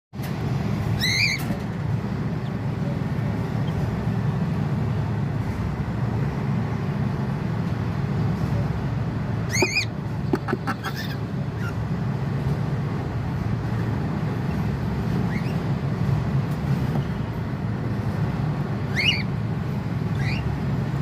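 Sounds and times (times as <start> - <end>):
steady low rumble: 1.6 - 15.2
cockatiel chirping: 9.5 - 9.9.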